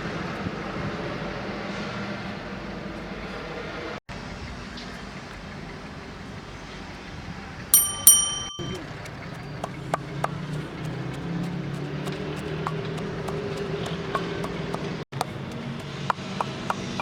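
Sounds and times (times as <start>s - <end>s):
sharp metallic rings: 7.8s - 9.0s.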